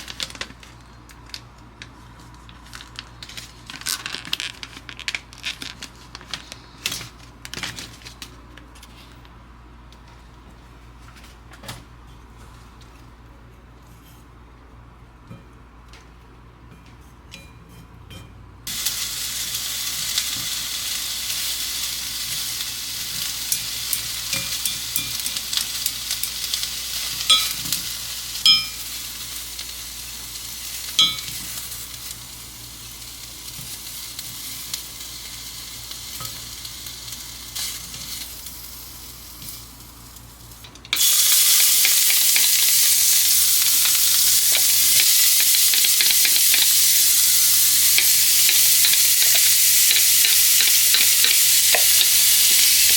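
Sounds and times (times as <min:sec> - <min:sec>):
food sizzling in a pan: 0:18.6 - 0:52.9
metal utensil clinks: 0:23.5 - 0:25.4, 0:27.3 - 0:27.7, 0:28.5 - 0:28.9, 0:31.0 - 0:31.4.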